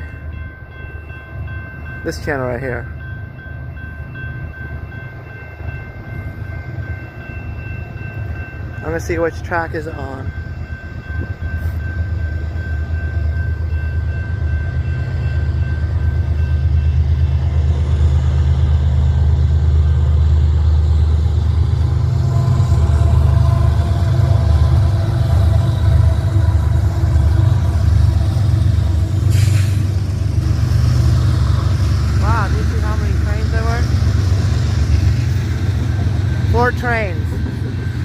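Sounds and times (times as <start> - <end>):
diesel locomotive engine rumble: 0.0 - 38.0.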